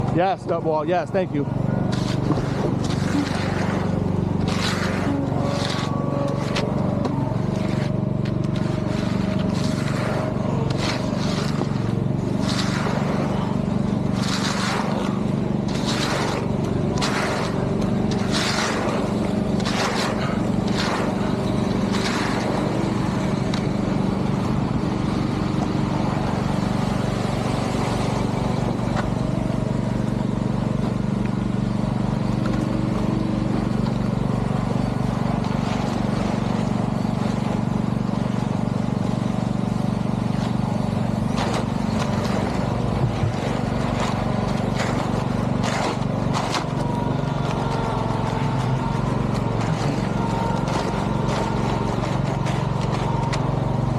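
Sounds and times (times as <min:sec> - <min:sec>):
heavy engine running: 0:00.0 - 0:53.9
short scraping strokes: 0:01.2 - 0:24.4.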